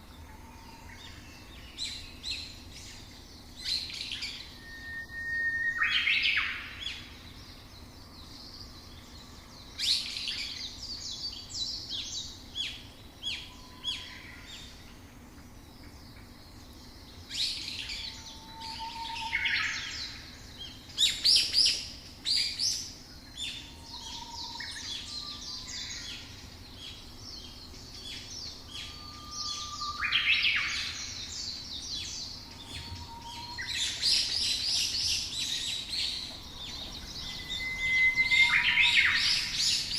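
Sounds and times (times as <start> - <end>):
songbirds chirping and trilling: 0.0 - 39.9
faint whistled bird notes: 0.2 - 7.5, 16.8 - 39.9.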